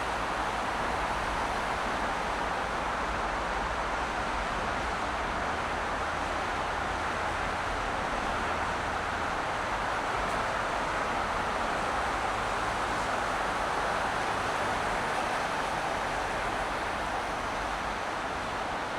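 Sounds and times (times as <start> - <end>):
road and tyre noise: 0.0 - 18.9.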